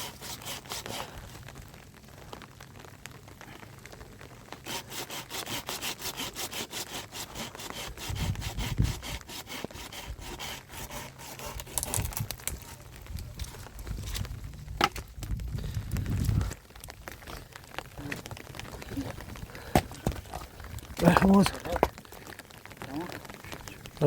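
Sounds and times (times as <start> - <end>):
hand saw cutting wood: 0.0 - 1.1, 4.6 - 12.3.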